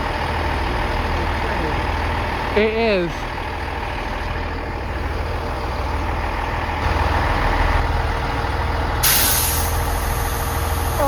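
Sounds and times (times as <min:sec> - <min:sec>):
diesel train engine running: 0:00.0 - 0:11.0
loud hiss: 0:09.0 - 0:11.0.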